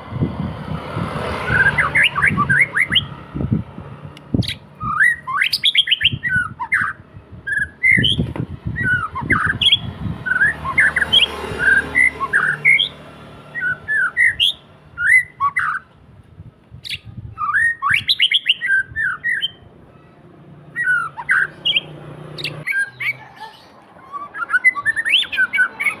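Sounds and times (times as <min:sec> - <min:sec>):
bird singing whistled notes: 0:01.4 - 0:03.2, 0:04.4 - 0:13.0, 0:13.6 - 0:15.9, 0:16.8 - 0:19.6, 0:20.7 - 0:23.3, 0:24.1 - 0:26.0.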